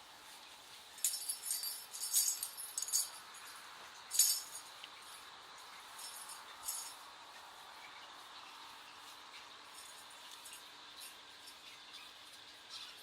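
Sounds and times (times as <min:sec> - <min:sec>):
light high-pitched clinking: 0:01.0 - 0:05.3, 0:05.9 - 0:07.1.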